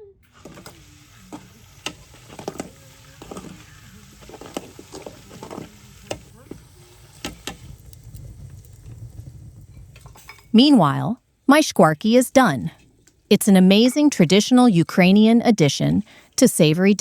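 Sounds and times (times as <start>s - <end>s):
fat sizzling in a pan: 0.3s - 10.5s
utensil scraping and clicking on pan: 0.4s - 7.8s.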